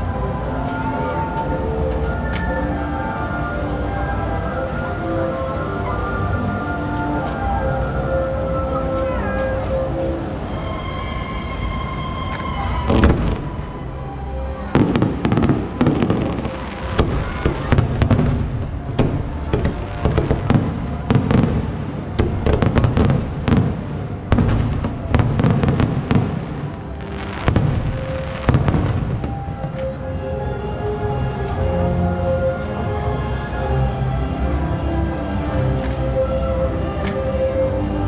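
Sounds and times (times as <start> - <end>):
fireworks exploding: 12.4 - 30.0.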